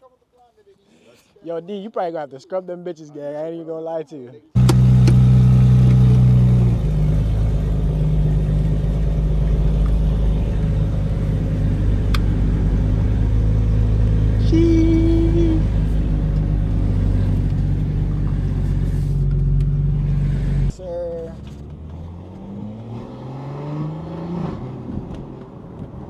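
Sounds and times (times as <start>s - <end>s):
car engine running: 4.6s - 22.0s.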